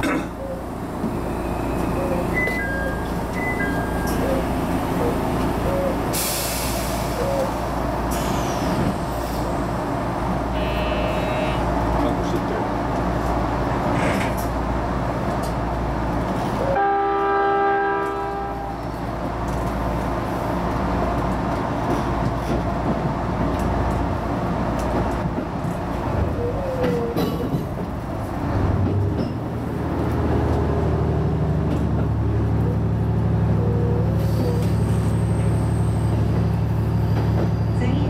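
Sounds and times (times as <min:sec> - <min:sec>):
railcar running: 0:00.0 - 0:38.0
train horn blast: 0:10.5 - 0:11.7, 0:16.7 - 0:18.9.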